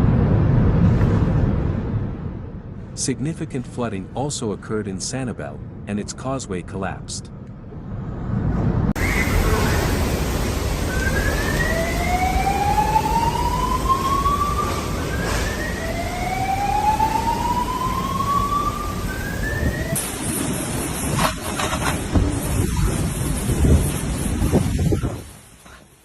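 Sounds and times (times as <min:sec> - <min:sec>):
hurricane wind and rain: 0:08.4 - 0:26.0
whining tone rising in pitch: 0:08.9 - 0:20.0.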